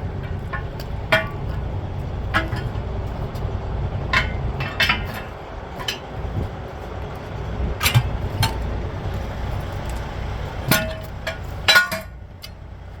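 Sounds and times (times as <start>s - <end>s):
tools clanking on metal rim: 0.0s - 12.7s
low steady rumble: 0.0s - 13.0s.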